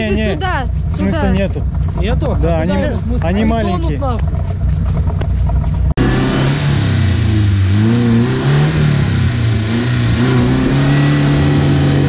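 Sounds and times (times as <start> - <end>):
vehicle engine revving: 0.0 - 12.0.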